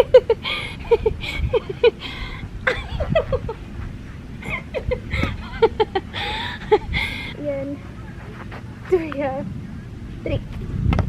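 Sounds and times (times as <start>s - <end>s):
person laughing: 0.0s - 3.6s, 4.4s - 7.4s.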